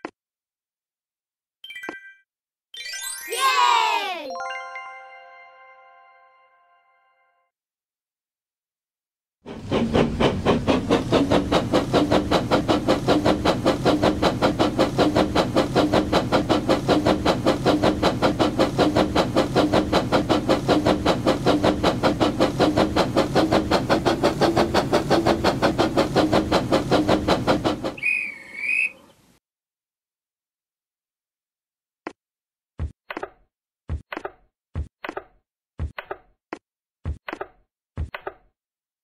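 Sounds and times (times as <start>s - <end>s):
steam train chuffing: 9.5s - 29.1s
train whistle toot: 28.0s - 29.0s.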